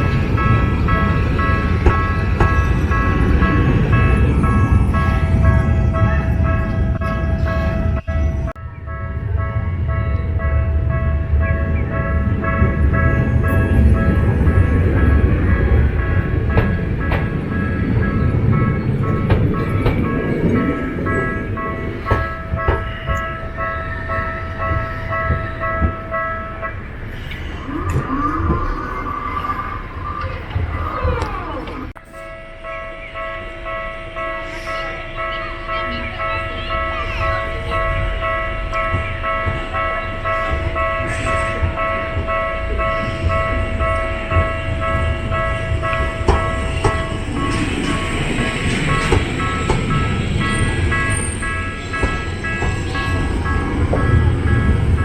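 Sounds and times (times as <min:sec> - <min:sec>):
level crossing warning bell: 0:00.0 - 0:55.0
low tram line noise: 0:00.0 - 0:55.0
gliding squeal: 0:26.6 - 0:32.4
level crossing alarm ringing: 0:31.9 - 0:55.0.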